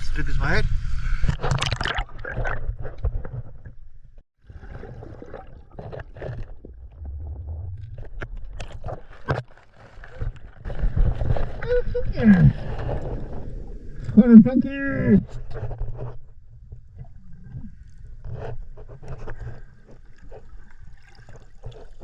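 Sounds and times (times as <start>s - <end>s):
knocks and scrapes: 5.7s - 11.6s, 15.3s - 16.3s.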